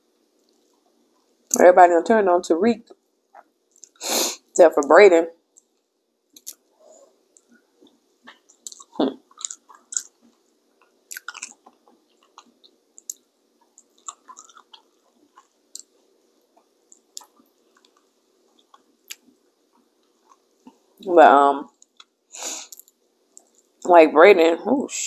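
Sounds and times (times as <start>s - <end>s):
mouth clicks and smacks: 3.4s - 4.0s, 5.5s - 6.7s, 8.2s - 16.0s
person chewing and biting: 7.4s - 20.8s.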